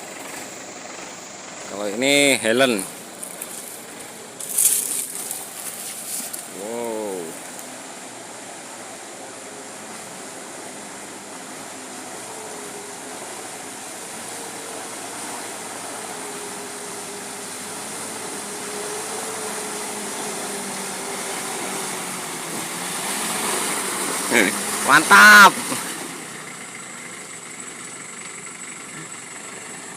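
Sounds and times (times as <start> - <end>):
truck engine running: 0.0 - 29.9.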